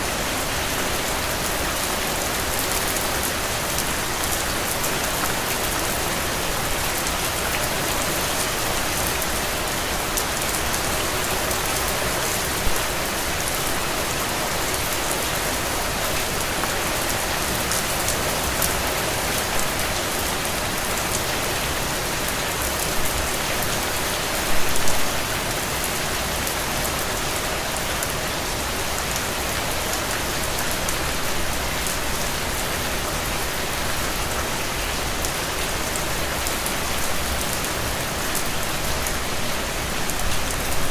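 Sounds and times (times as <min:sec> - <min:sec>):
heavy rain falling: 0:00.0 - 0:40.9
loud rain splashes: 0:00.0 - 0:40.9.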